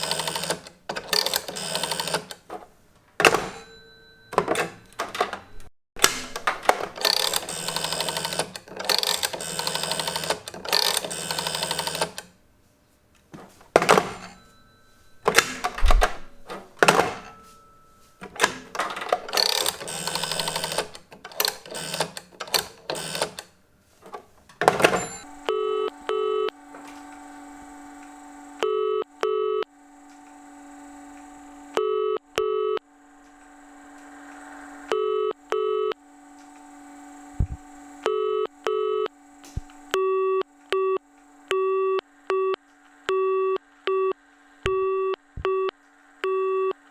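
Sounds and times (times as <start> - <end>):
telephone bell ringing: 0.0 - 2.5, 3.2 - 5.4, 6.4 - 12.3, 13.8 - 16.0, 16.8 - 22.2, 24.7 - 42.6
telephone ringing tone: 0.0 - 2.6, 3.2 - 12.3, 13.4 - 23.5, 24.6 - 46.9
telephone exchange switches clicking: 0.0 - 3.7, 4.4 - 12.3, 15.3 - 17.4, 18.2 - 23.5.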